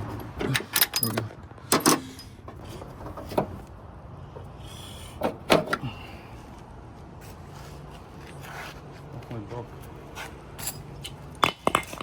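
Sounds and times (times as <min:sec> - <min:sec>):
metal tools knocking and clanking: 0:00.2 - 0:03.6, 0:10.6 - 0:12.0.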